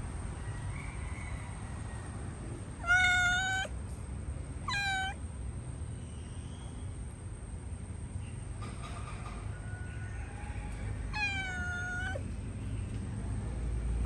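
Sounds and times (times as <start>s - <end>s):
cat meowing: 2.8s - 3.7s, 4.7s - 5.2s, 11.2s - 12.2s.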